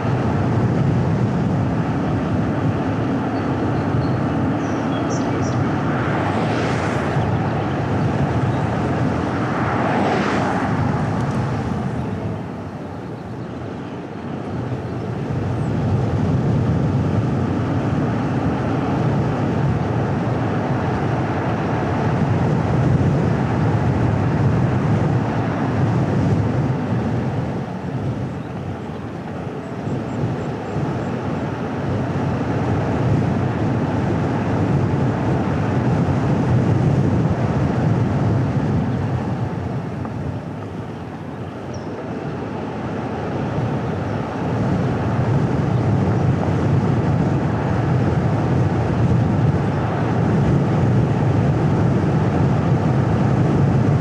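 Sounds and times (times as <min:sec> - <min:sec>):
car driving on road: 0:00.0 - 0:54.0.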